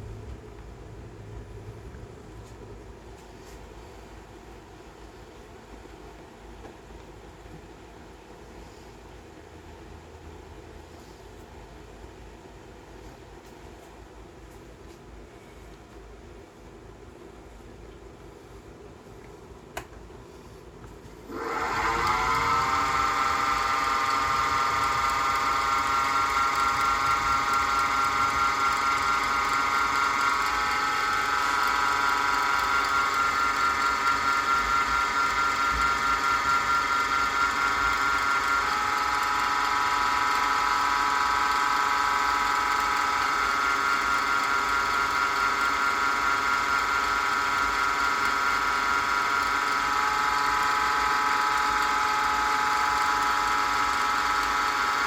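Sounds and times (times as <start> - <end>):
wood lathe motor whine: 21.2 - 55.0.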